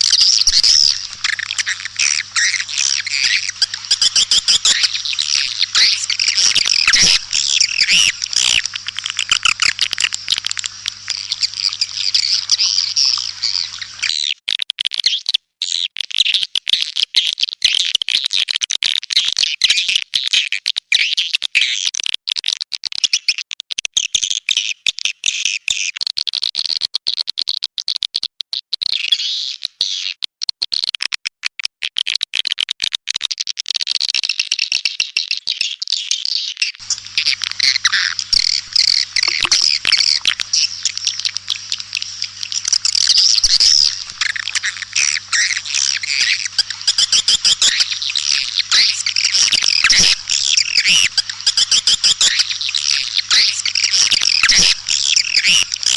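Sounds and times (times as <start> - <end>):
swiftlet chirps and twitters: 0.0 - 14.2, 36.8 - 55.9
low hum: 0.1 - 14.1, 36.8 - 55.9.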